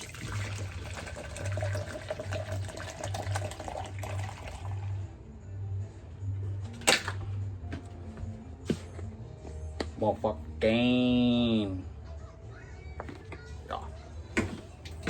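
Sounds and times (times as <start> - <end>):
water running from a faucet: 0.0 - 4.9.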